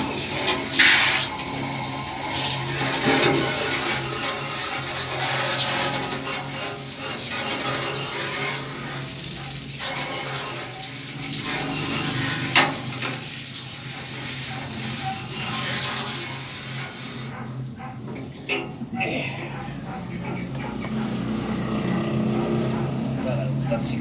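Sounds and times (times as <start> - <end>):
running water hissing: 0.0 - 17.4.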